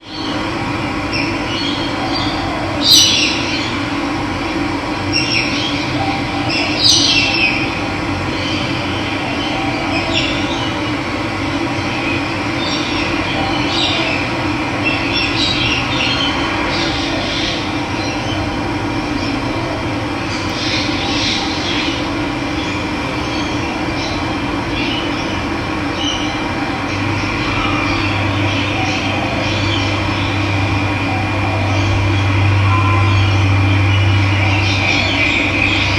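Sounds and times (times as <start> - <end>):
birds chirping: 20.3 - 35.9.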